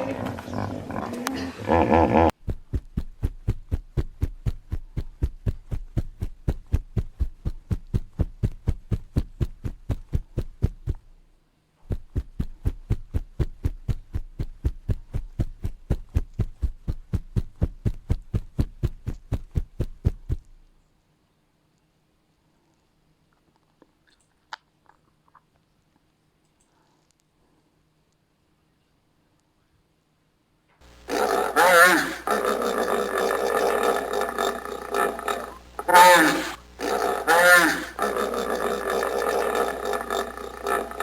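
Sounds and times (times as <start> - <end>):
hippopotamus pulsed grunts: 31.1 - 41.0.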